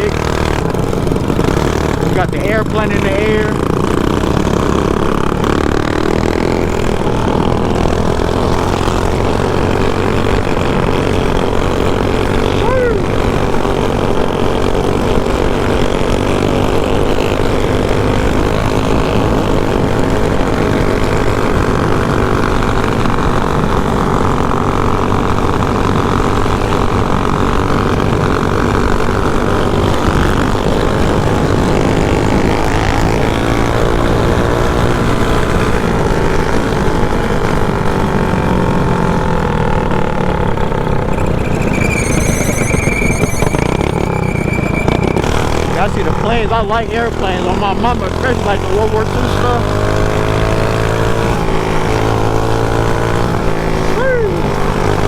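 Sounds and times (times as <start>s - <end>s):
mini bike engine revving: 0.0s - 55.0s
high steady tone: 40.8s - 49.6s.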